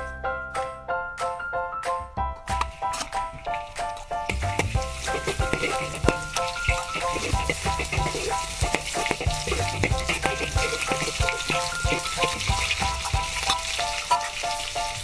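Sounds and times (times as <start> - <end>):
garlic sizzling in oil: 2.7 - 15.0
background music with bass: 4.3 - 13.6
spatula clicking in wok: 4.3 - 14.3.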